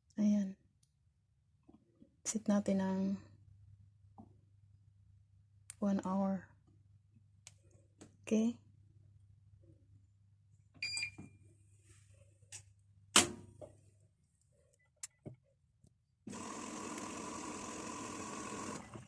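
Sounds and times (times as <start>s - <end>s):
control panel beep: 10.8s - 11.2s.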